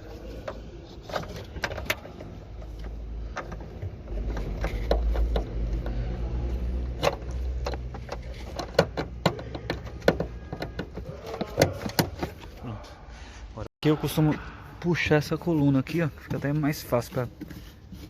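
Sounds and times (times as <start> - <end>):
plastic clicks and knocks: 6.9 - 12.4.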